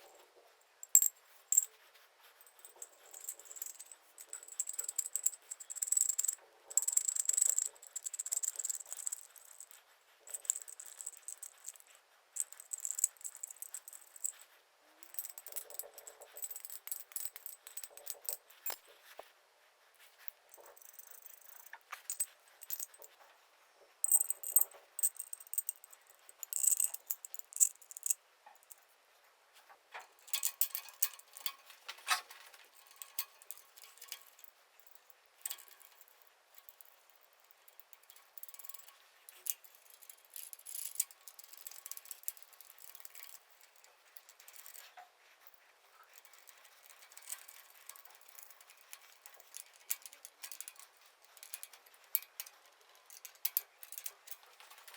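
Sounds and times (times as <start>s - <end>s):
metal parts and tools clinking: 0.8s - 1.7s, 2.4s - 14.4s, 15.0s - 19.0s, 20.2s - 23.2s, 24.0s - 28.8s, 30.1s - 36.9s, 37.7s - 45.0s, 46.2s - 54.9s.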